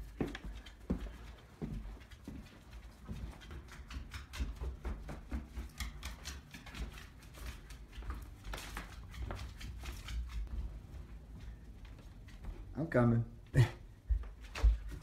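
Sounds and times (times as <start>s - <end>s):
dog claws clicking on hard floor: 0.1s - 10.9s.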